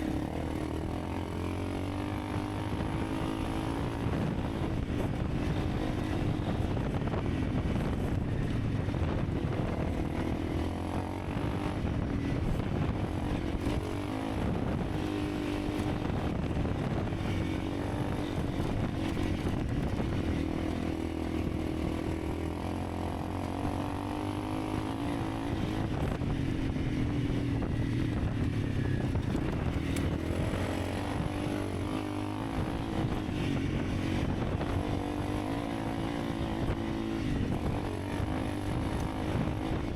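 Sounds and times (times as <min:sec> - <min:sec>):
motorcycle engine revving: 0:00.0 - 0:39.9
wind noise: 0:00.0 - 0:39.9.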